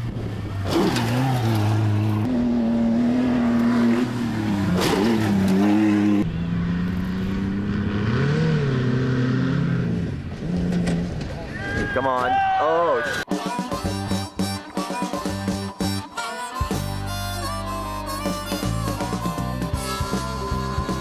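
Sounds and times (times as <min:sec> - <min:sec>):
truck engines revving: 0:00.0 - 0:11.6, 0:16.7 - 0:21.0.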